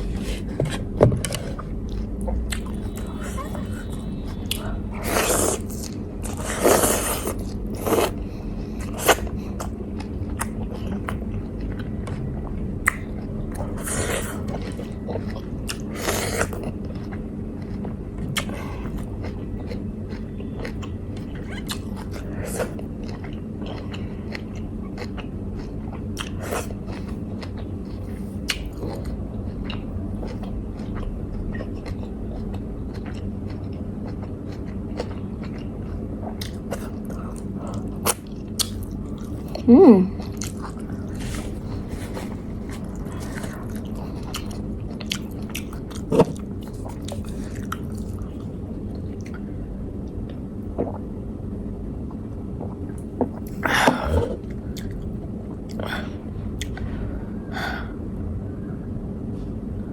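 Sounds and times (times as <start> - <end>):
food being chewed: 0.0 - 49.5, 52.1 - 56.0
steady low hum: 0.0 - 59.9.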